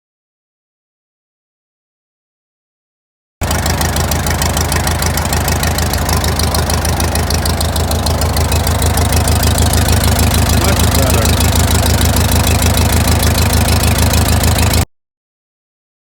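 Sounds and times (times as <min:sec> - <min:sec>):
tractor engine running: 0:03.4 - 0:14.9.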